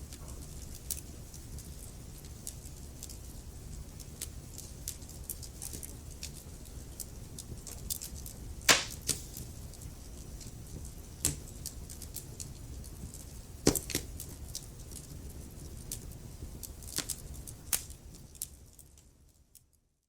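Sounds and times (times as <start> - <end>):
small fire crackles: 0.0 - 20.0
loud fire pops: 8.7 - 9.6.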